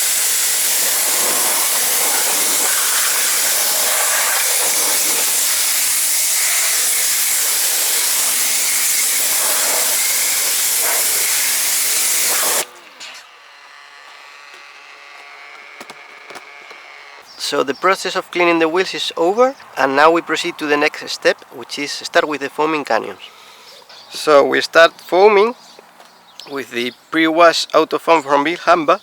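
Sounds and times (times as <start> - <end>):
pressure washer spraying water: 0.0 - 13.1
faint motor hum: 6.3 - 17.4.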